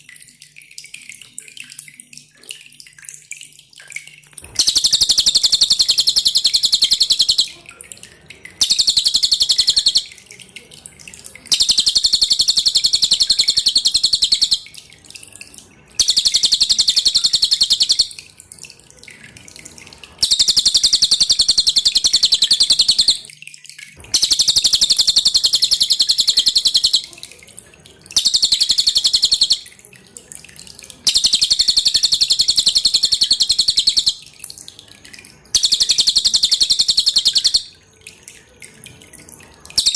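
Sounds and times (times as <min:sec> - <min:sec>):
faint dripping water: 0:00.0 - 0:39.9
bird singing high-pitched chattering song: 0:04.4 - 0:07.7, 0:08.5 - 0:10.4, 0:11.2 - 0:14.8, 0:16.0 - 0:18.3, 0:20.2 - 0:23.3, 0:24.0 - 0:27.4, 0:28.1 - 0:29.7, 0:31.0 - 0:34.4, 0:35.5 - 0:37.8.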